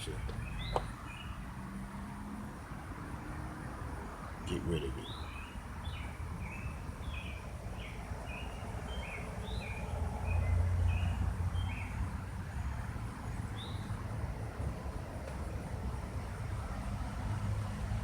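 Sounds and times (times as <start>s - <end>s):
small bird chirping: 0.0s - 1.4s, 4.5s - 10.4s.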